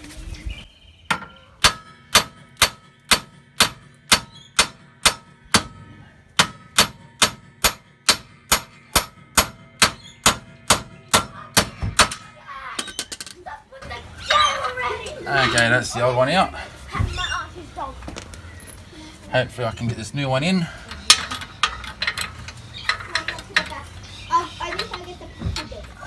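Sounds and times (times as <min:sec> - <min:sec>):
hammer striking metal hub: 0:01.1 - 0:12.3.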